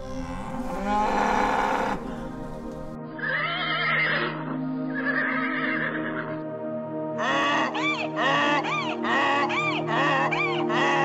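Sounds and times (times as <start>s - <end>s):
animal calls: 0.0s - 2.4s, 7.2s - 11.0s
background music: 0.0s - 11.0s.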